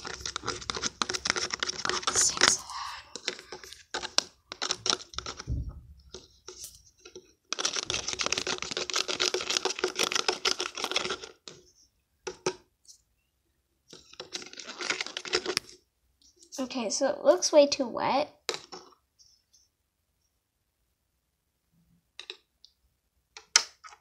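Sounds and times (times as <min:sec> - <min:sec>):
pen stirring slime in a cup: 0:00.0 - 0:13.0, 0:13.9 - 0:15.8.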